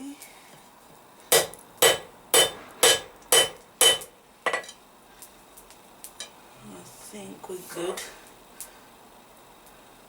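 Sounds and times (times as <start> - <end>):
hammer striking steel on anvil: 1.3 - 4.8.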